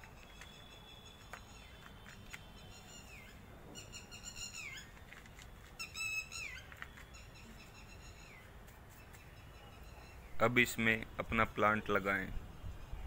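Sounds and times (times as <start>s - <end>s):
soil and grit ticking: 0.0s - 2.9s, 4.7s - 7.4s.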